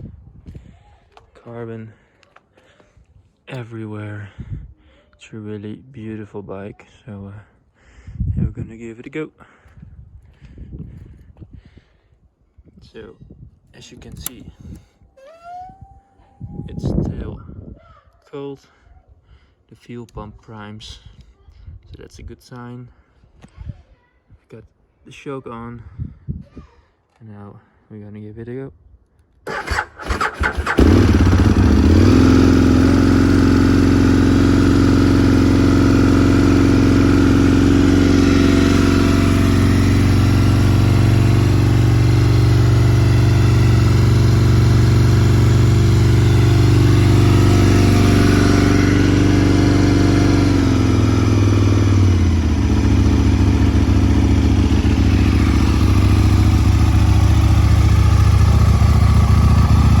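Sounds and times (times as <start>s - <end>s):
motorcycle engine idling: 29.5s - 60.0s.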